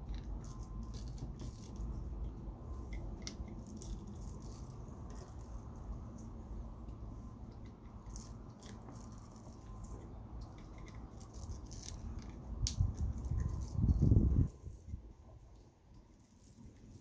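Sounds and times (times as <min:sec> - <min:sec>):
metal tools clicking and scraping: 0:07.5 - 0:17.0.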